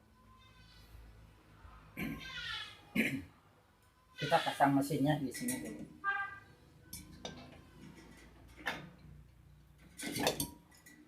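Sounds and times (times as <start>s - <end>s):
metal clinking and knocking: 6.8s - 11.0s.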